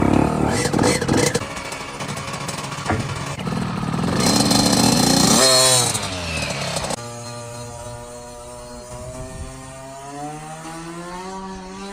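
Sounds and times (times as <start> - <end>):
two-stroke engine revving: 0.0 - 11.9.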